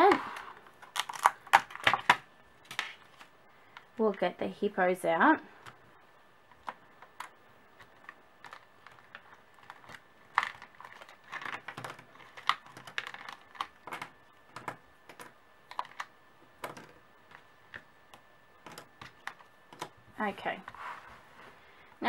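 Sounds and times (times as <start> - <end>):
magnetic pieces clicking: 6.5 - 20.0.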